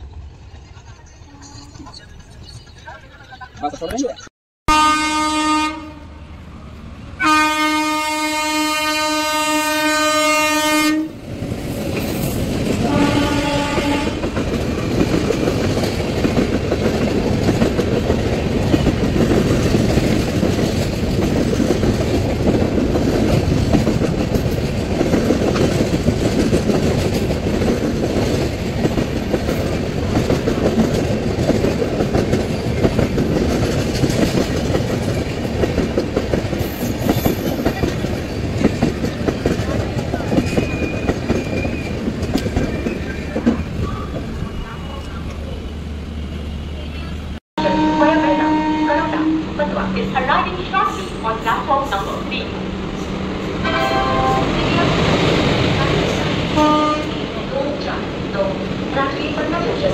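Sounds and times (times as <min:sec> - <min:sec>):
train coaches rumbling and clattering: 0:00.0 - 0:59.9
train horn blast: 0:04.7 - 0:06.3, 0:07.2 - 0:11.2, 0:12.8 - 0:14.4, 0:47.6 - 0:49.5, 0:53.6 - 0:55.1, 0:55.9 - 0:57.3.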